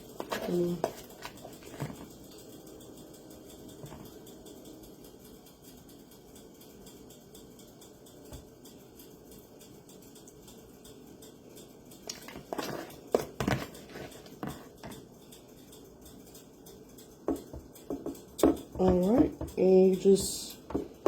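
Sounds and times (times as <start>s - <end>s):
dishes knocking and clattering: 3.8s - 4.1s, 17.3s - 19.6s, 20.7s - 21.0s.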